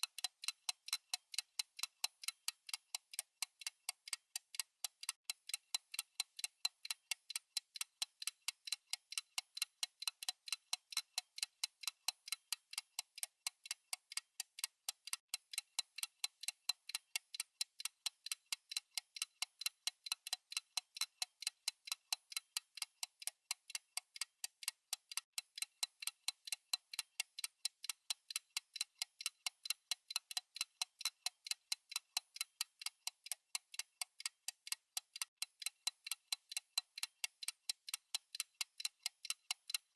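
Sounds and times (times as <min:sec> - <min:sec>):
fast clock ticking: 0:00.0 - 0:39.9.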